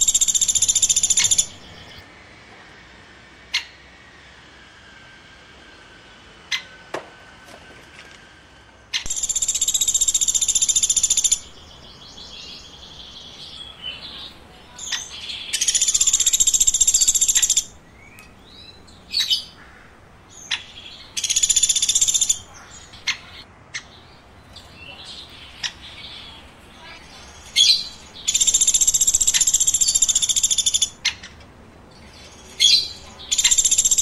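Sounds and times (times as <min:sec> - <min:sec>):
bird buzzy trill: 0:00.0 - 0:02.0, 0:09.1 - 0:11.6, 0:20.7 - 0:23.4, 0:32.7 - 0:34.0
bird chirps and ticks: 0:00.0 - 0:02.0, 0:09.0 - 0:12.6, 0:13.3 - 0:19.6, 0:20.4 - 0:34.0.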